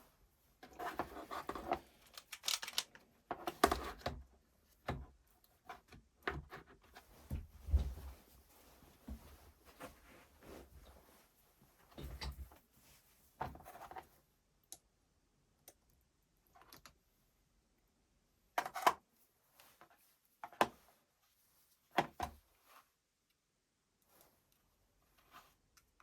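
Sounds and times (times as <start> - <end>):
clicks and knocks of tools: 1.5 - 3.0.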